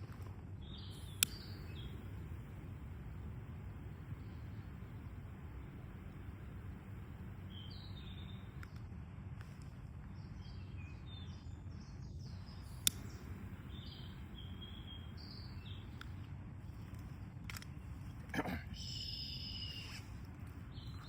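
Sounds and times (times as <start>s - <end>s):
low background rumble: 0.0s - 21.0s
small birds chirping: 0.0s - 21.0s
sharp click: 1.1s - 1.6s, 12.7s - 13.2s.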